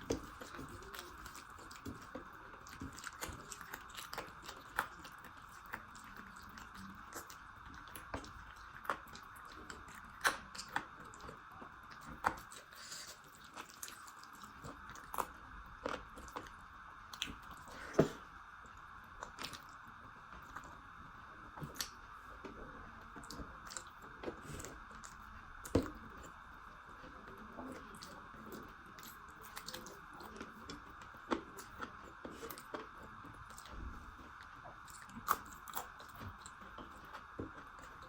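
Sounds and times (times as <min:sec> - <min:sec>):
person chewing and biting food: 0:00.0 - 0:18.2, 0:27.8 - 0:38.0.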